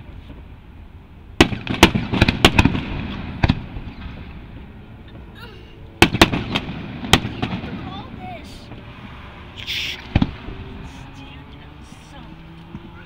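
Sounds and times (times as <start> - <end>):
fireworks bursting: 1.4 - 5.3, 6.0 - 11.0.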